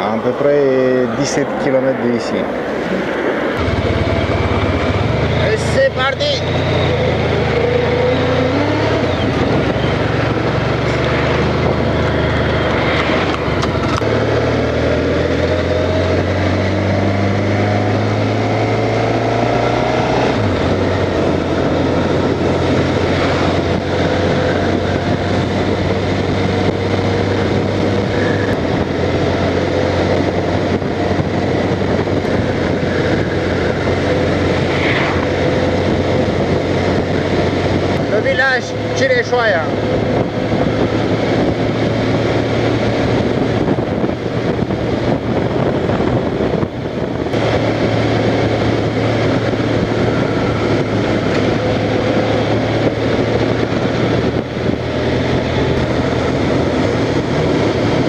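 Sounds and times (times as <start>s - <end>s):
wind and road noise: 0.0s - 58.0s
motorcycle engine under way: 3.6s - 58.0s.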